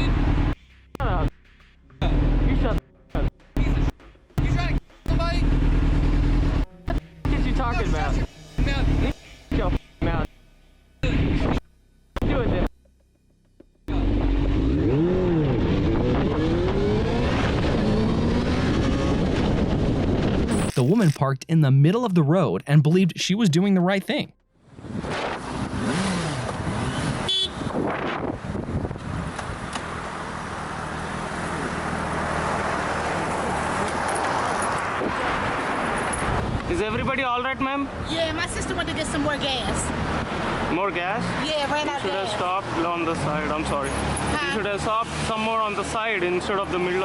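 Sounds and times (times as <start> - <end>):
motorcycle engine accelerating: 0.0 - 1.4, 2.0 - 20.6, 24.6 - 37.0
road and wind noise: 0.0 - 1.4, 2.0 - 10.3, 11.0 - 12.7, 13.9 - 21.2, 24.5 - 47.0
wind rush: 15.8 - 20.5, 27.6 - 29.6.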